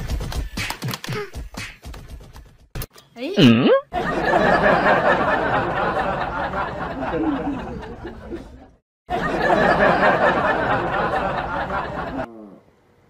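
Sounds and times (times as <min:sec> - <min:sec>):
laughter: 0:03.9 - 0:12.3.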